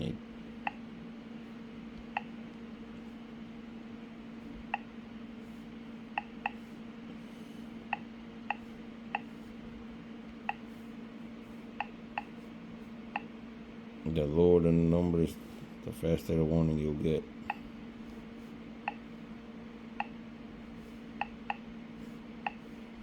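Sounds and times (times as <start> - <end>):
steady low hum: 0.0 - 23.0
touchscreen key-press clicks: 20.0 - 20.2.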